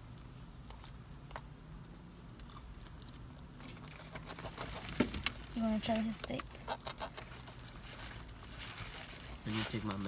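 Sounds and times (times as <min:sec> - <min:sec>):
chewing and eating: 0:00.0 - 0:05.0, 0:06.0 - 0:08.9.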